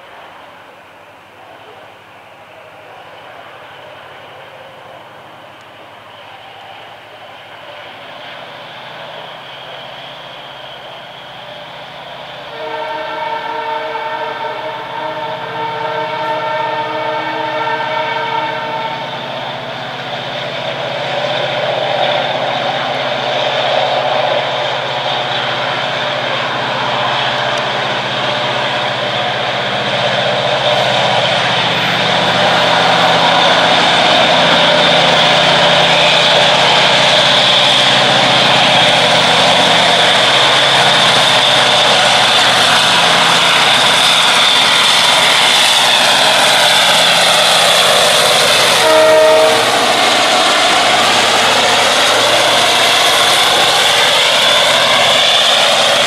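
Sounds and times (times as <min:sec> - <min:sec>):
approaching train noise: 0:00.0 - 0:56.0
locomotive horn chord: 0:12.5 - 0:19.2, 0:48.4 - 0:50.4.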